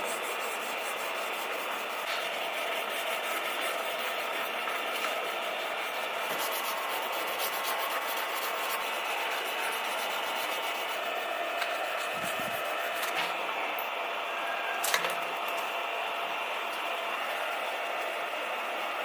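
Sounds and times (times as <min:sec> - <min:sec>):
hand sanding small part: 0:00.0 - 0:13.4.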